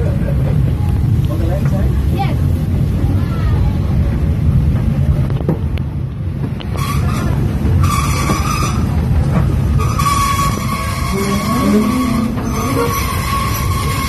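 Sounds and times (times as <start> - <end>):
train rumbling: 0.0 - 14.0
wheels squealing on rails: 6.4 - 14.0.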